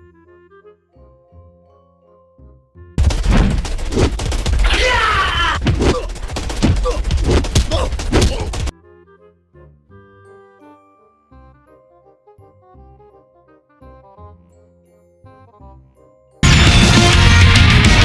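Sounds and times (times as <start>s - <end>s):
rapid gunfire and impacts: 3.0s - 8.7s
soft tinkling music: 10.3s - 11.7s, 14.4s - 16.4s.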